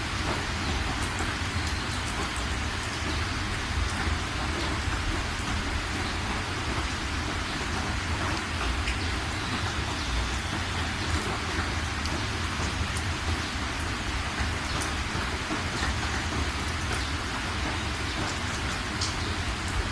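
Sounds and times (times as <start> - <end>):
rain falling: 0.0 - 19.9.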